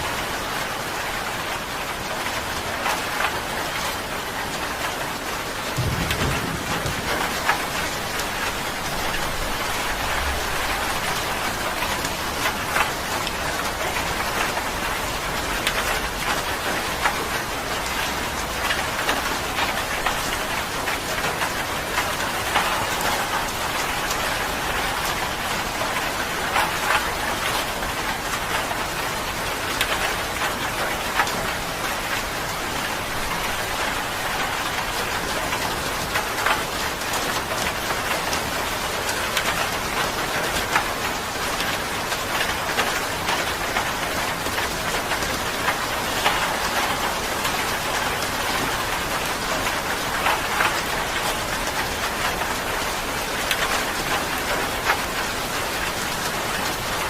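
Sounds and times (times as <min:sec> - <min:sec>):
steady rain hissing: 0:00.0 - 0:57.0
raindrops tapping nearby: 0:01.0 - 0:57.0.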